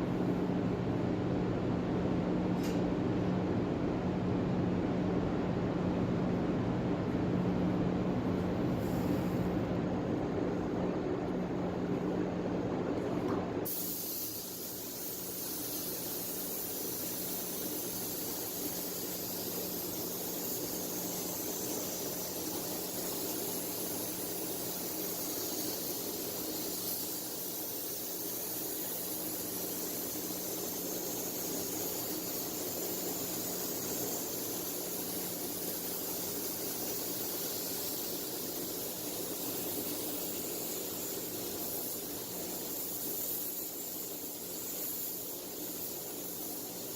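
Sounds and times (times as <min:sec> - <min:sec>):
low fan hum: 0:00.0 - 0:43.9
rushing airflow hiss: 0:08.6 - 0:09.7, 0:13.6 - 0:46.9
spray gun hissing: 0:08.8 - 0:09.5, 0:13.6 - 0:46.9.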